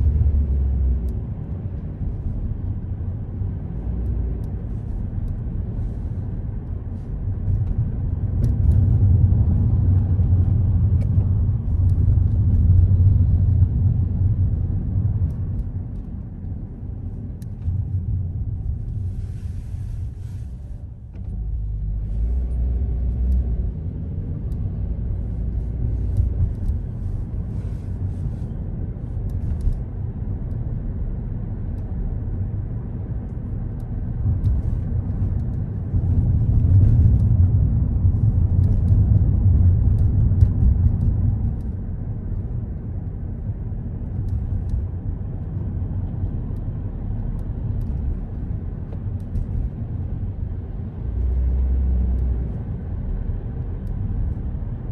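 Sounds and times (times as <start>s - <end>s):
car road and engine rumble: 0.0s - 54.9s.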